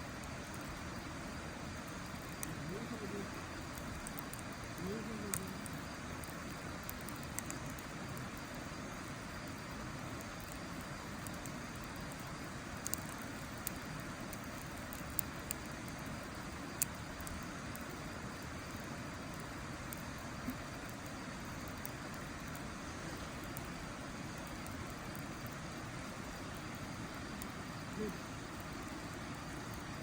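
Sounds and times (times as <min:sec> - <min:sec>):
campfire crackling: 0:00.0 - 0:30.0
sharp fire pops: 0:01.7 - 0:30.0.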